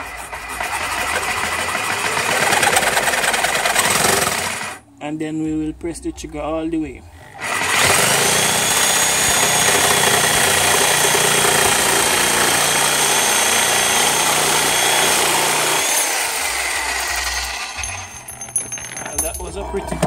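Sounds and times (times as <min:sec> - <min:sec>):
reciprocating saw cutting metal pipe: 0:07.4 - 0:20.0.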